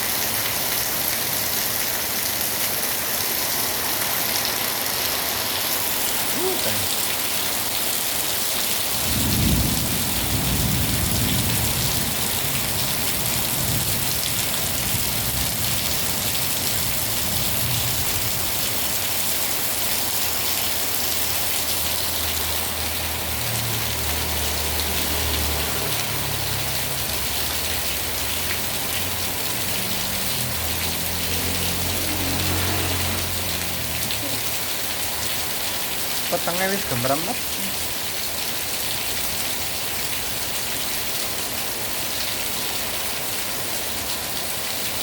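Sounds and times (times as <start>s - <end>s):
heavy rain pouring: 0.0s - 45.0s
thunder rumbling: 9.0s - 14.2s.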